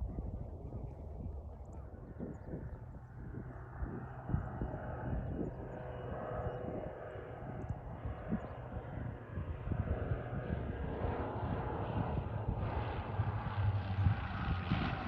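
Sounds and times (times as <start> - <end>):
propeller engines droning: 0.0 - 15.0.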